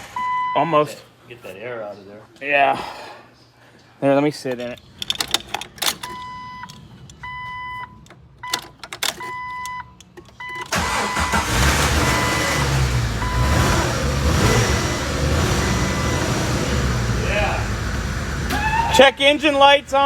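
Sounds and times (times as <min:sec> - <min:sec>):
car engine starting and idling: 0:04.8 - 0:20.0
dashboard warning chime beeping: 0:06.0 - 0:13.8, 0:15.4 - 0:16.6.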